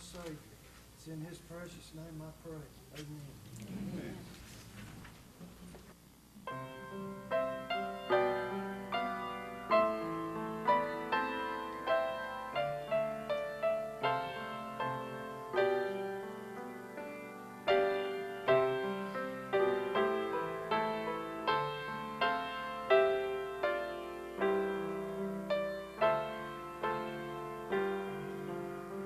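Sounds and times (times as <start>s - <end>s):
slow gentle piano piece: 6.4s - 29.0s.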